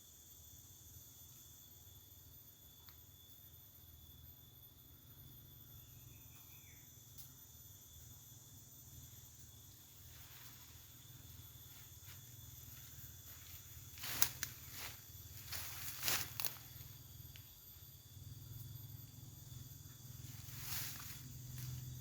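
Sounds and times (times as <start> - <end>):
low forest hum: 0.0 - 22.0
insects shrilling: 5.4 - 22.0
rustling crunches: 11.8 - 16.9.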